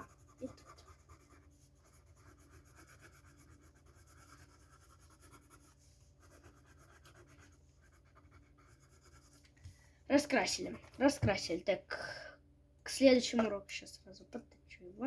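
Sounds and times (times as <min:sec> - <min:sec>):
pencil scratching on paper: 0:00.0 - 0:09.5, 0:10.1 - 0:11.4.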